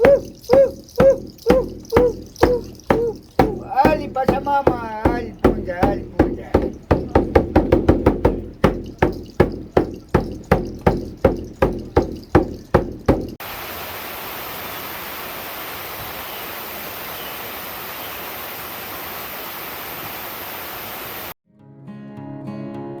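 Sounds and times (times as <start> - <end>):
water rushing: 0.0 - 7.3, 13.4 - 21.4
ringing percussive strikes: 0.0 - 13.4.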